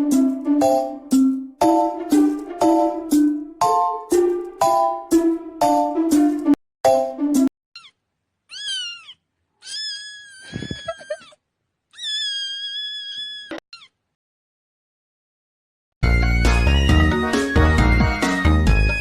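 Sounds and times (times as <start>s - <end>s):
cat meowing: 7.8s - 11.4s, 12.0s - 14.0s
short music: 16.0s - 19.0s.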